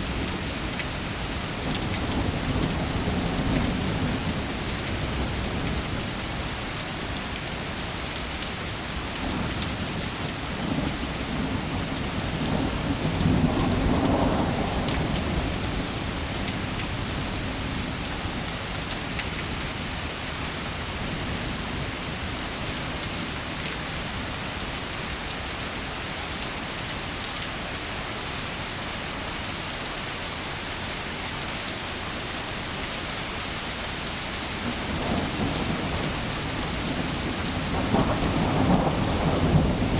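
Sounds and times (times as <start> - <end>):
heavy rain: 0.0 - 39.9
thunder rumble: 9.4 - 18.4, 34.6 - 39.9.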